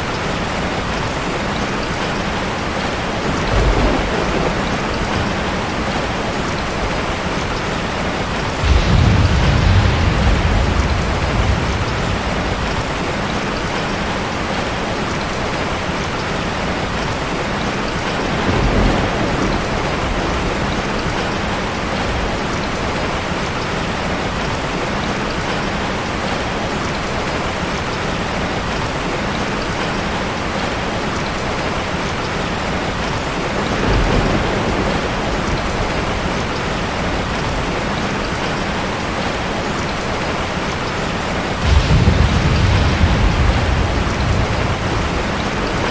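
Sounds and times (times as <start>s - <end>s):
heavy rain hissing: 0.0s - 24.9s, 28.3s - 45.9s
low rumbles: 8.6s - 13.8s, 41.6s - 45.9s.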